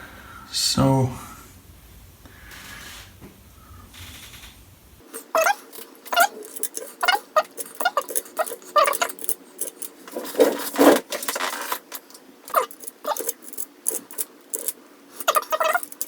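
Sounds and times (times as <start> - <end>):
rustling scrape: 2.4 - 3.2, 3.9 - 16.0
plastic and metal parts rattling: 5.0 - 16.0.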